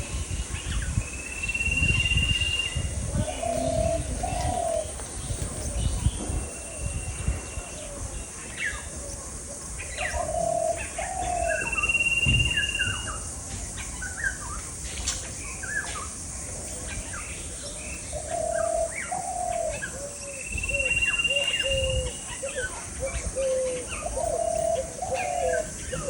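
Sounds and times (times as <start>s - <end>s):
long steady bird whistle: 0.0s - 3.0s, 5.8s - 9.3s, 10.2s - 13.3s, 17.5s - 22.8s
low bird calls: 0.0s - 14.8s, 15.4s - 26.0s
birds chirping: 0.0s - 26.0s.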